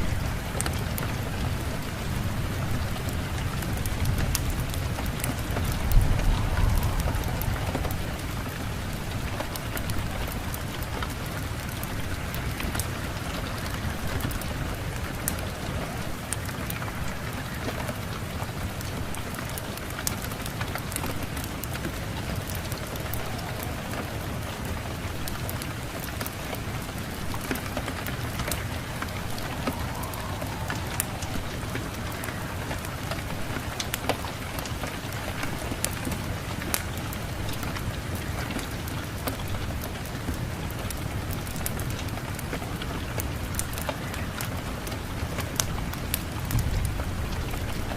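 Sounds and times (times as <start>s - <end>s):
sharp ticks of raindrops: 0.0s - 47.9s
steady rain hissing: 0.0s - 47.9s
low rumble: 4.1s - 11.6s, 21.8s - 26.8s, 28.0s - 34.6s.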